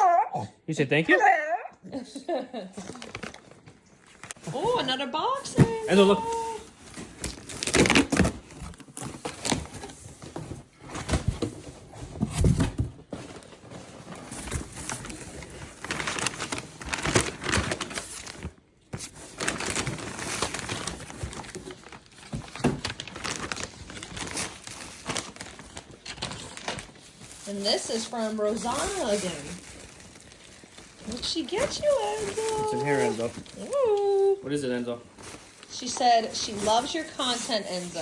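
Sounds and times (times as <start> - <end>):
cardboard box being opened: 2.8 - 34.0
packaging paper crinkling: 2.8 - 34.3, 35.1 - 38.0
paper tearing: 27.5 - 33.8.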